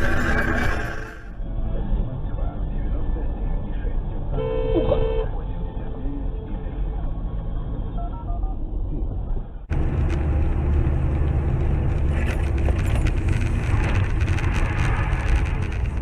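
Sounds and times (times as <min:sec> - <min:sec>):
car engine and road rumble: 0:01.2 - 0:16.0
small rattles and clicks: 0:09.7 - 0:16.0.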